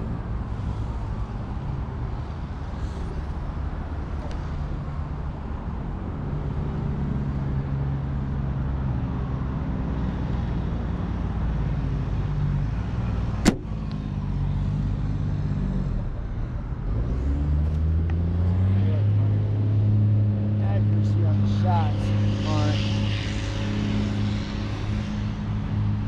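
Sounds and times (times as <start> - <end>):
compound bow shot crack: 13.4 - 14.0.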